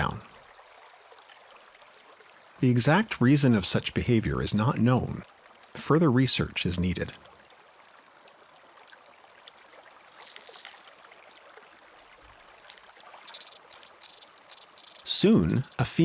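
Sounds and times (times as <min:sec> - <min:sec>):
forest stream rushing: 0:05.3 - 0:16.0
high-pitched insect trill: 0:10.2 - 0:16.0.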